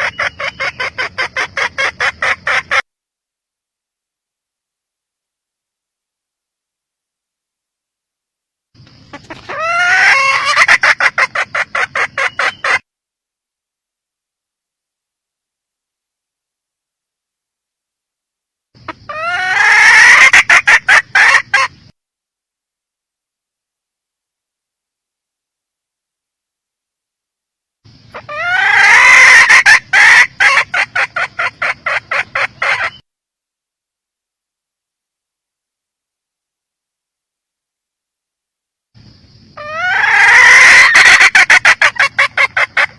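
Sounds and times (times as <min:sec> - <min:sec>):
sharp clucks: 0:00.0 - 0:02.8, 0:08.8 - 0:12.8, 0:18.8 - 0:21.9, 0:27.9 - 0:33.0, 0:39.6 - 0:42.9
hen cackling: 0:00.0 - 0:02.9, 0:09.0 - 0:12.9, 0:18.8 - 0:21.9, 0:27.9 - 0:33.0, 0:39.5 - 0:42.9.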